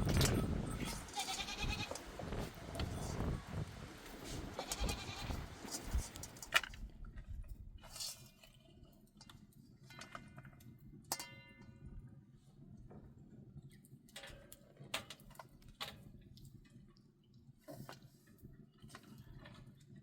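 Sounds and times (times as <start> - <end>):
goats bleating: 0.8 - 2.0, 4.5 - 5.5.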